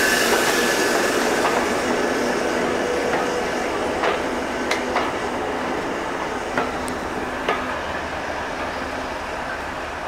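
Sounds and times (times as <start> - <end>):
train wheels rumbling on rail: 0.0 - 10.0
wheels clicking over rail joints: 4.0 - 8.0.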